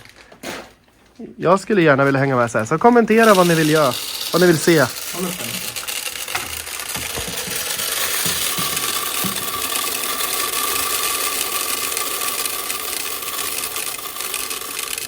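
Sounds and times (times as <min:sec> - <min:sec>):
coffee machine whirring: 0:02.6 - 0:15.0.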